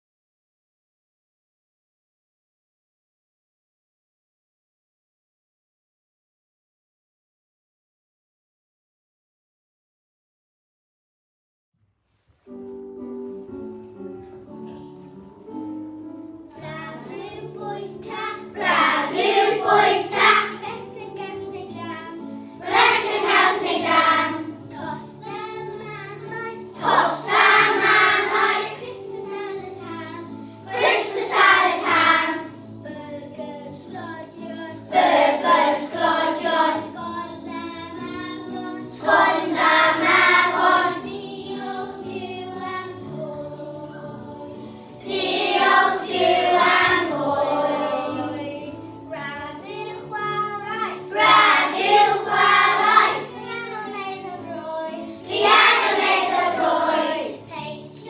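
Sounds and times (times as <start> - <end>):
instrumental accompaniment: 12.4 - 58.0
group of voices singing: 18.1 - 20.6, 22.6 - 30.1, 30.7 - 32.5, 34.0 - 37.8, 38.6 - 50.0, 51.1 - 53.3, 54.9 - 57.5.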